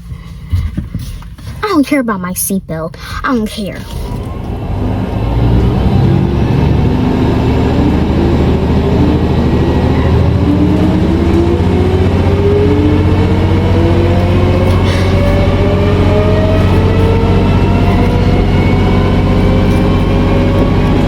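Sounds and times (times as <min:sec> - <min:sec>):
car engine accelerating: 0:04.0 - 0:21.0.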